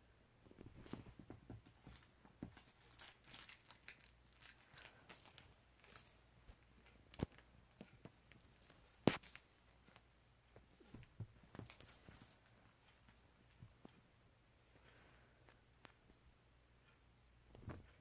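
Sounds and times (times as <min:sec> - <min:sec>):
kitten scratching and crinkling: 0:00.5 - 0:09.5.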